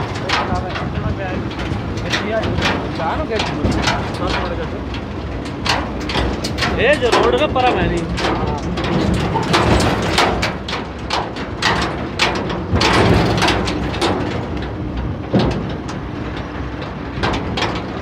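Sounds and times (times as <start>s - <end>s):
knocks and rattles: 0.0s - 18.0s
tractor engine running: 0.0s - 18.0s.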